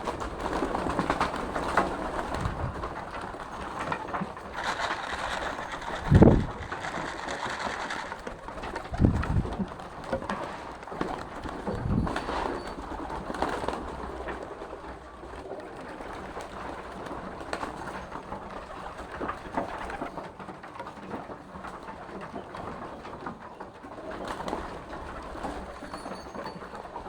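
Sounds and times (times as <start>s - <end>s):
birds knocking and scuffling: 0.0s - 27.0s.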